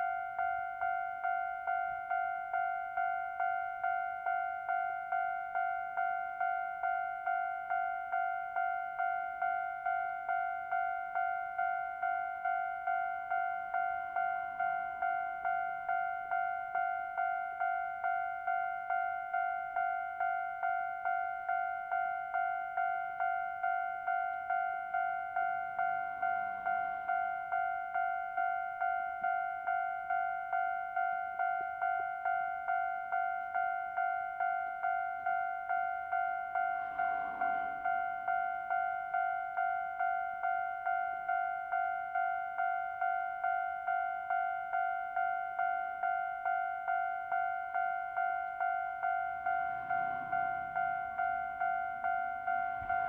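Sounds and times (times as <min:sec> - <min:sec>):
level-crossing warning bell: 0:00.0 - 0:53.0.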